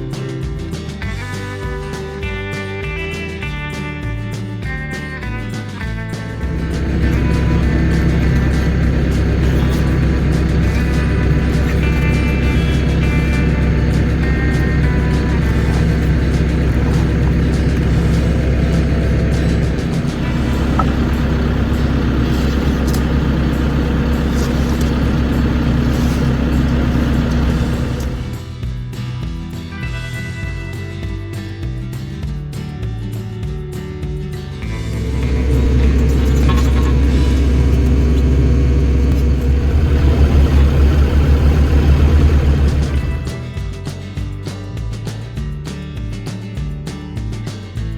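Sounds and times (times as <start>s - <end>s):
background music: 0.0s - 47.9s
excavator diesel engine running: 6.2s - 28.6s, 34.6s - 43.6s.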